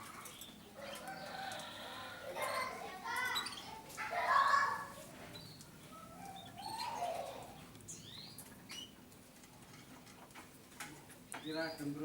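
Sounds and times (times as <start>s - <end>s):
canaries chirping: 0.2s - 9.1s, 11.3s - 12.0s.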